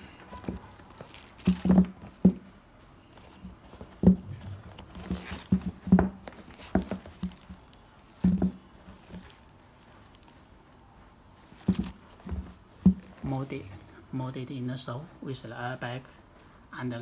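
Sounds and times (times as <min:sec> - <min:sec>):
sneakers knocking and tapping: 0:00.0 - 0:02.5, 0:03.1 - 0:09.4, 0:11.5 - 0:13.8.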